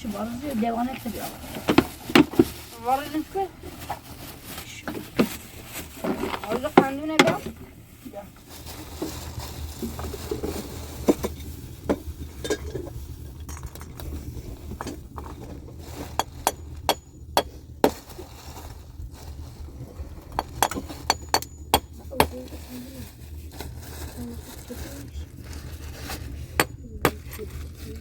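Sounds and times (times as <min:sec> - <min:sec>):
steady low hum: 0:00.0 - 0:28.0
glass and crockery clinking: 0:20.4 - 0:22.3.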